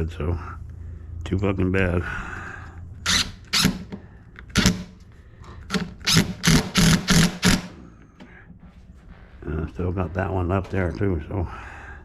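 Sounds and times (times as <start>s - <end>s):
cordless drill bursts: 3.0s - 3.9s, 5.7s - 7.7s.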